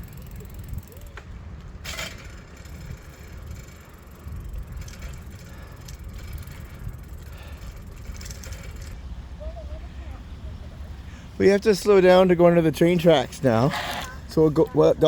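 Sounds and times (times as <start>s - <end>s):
bicycle rattles: 0.0s - 9.5s, 11.4s - 15.0s
wind buffeting microphone: 0.0s - 11.1s
tyre and road rumble: 0.0s - 15.0s.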